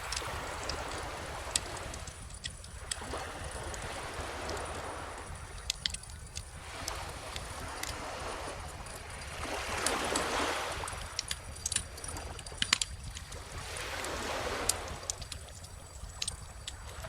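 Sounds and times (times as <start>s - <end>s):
ocean waves washing ashore: 0.0s - 17.0s
wood fire crackling: 4.6s - 6.6s.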